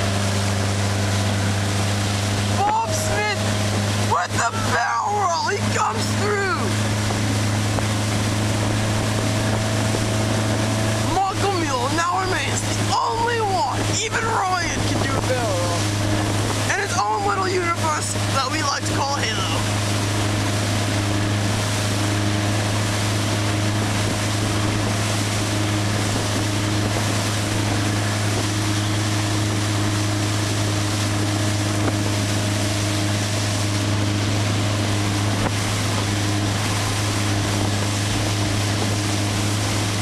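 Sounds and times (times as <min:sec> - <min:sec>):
motorboat engine droning: 0:00.0 - 0:40.0
rushing wind: 0:00.0 - 0:40.0
water rushing: 0:00.0 - 0:40.0.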